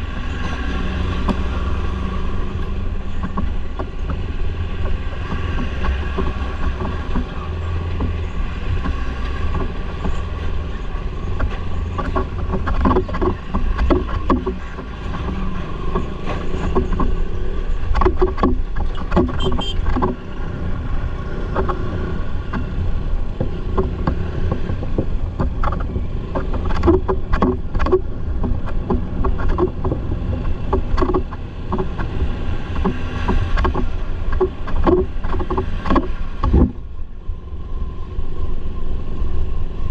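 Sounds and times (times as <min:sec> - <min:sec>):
wind rumble on microphone: 0:00.0 - 0:39.9
motorcycle engine running: 0:14.6 - 0:31.8.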